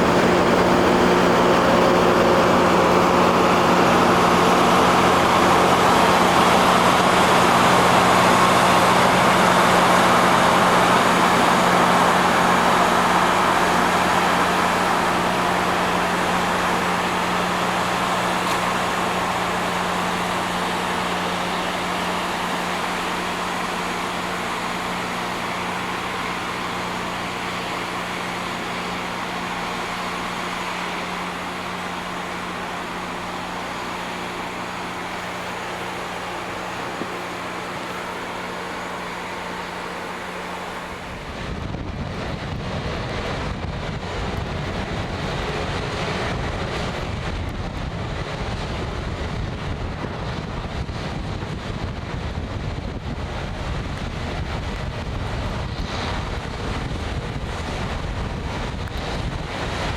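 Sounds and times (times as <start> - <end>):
rail grinding machine: 0.0 - 59.9.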